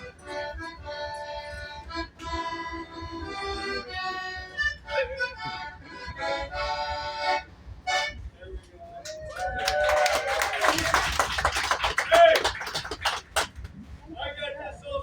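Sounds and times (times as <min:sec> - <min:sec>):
free-reed instrument chords: 0:00.0 - 0:08.2.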